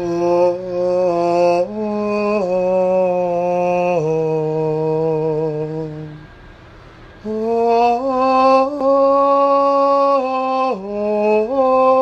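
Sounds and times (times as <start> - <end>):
choir chanting long notes: 7.2 - 12.0.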